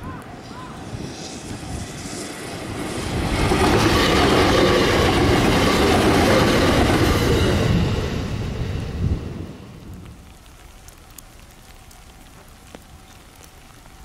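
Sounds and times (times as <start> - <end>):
electric train rushing past: 0.0 - 10.1.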